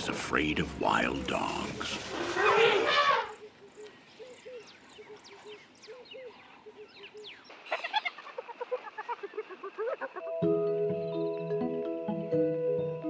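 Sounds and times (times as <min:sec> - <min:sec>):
birds chirping and whistling: 0:02.4 - 0:08.2, 0:10.9 - 0:12.2
bird clucking calls: 0:02.4 - 0:10.3.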